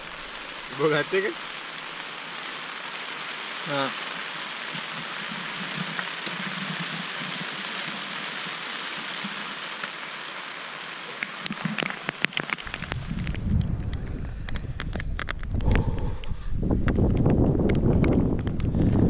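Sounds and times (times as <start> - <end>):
rain pattering on tent fabric: 0.0 - 19.0
sharp clicks and knocks: 11.2 - 15.7
wind buffeting microphone: 12.6 - 19.0.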